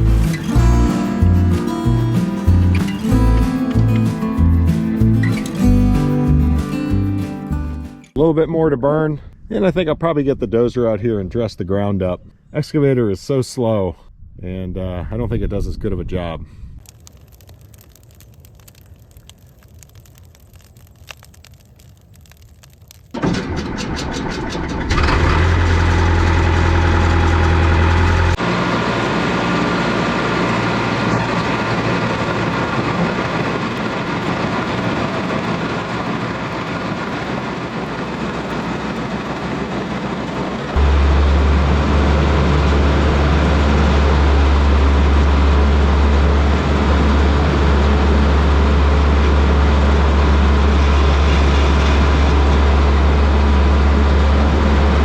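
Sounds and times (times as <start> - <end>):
bulldozer diesel engine: 0.0 - 8.0, 23.2 - 55.0.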